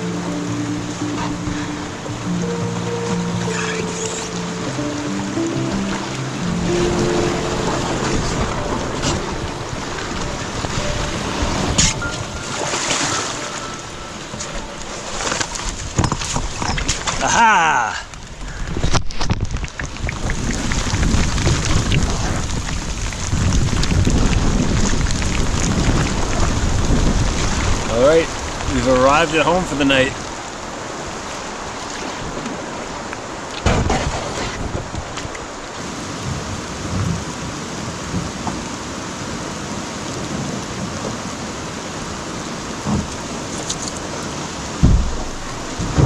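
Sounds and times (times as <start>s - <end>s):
low rumbles: 0.0s - 17.4s, 18.0s - 30.8s, 42.6s - 46.0s
rain falling: 0.0s - 46.0s.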